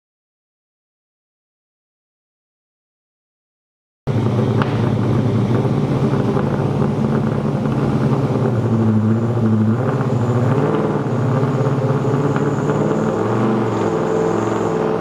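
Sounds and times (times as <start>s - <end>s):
car engine on a dyno: 4.1s - 15.0s.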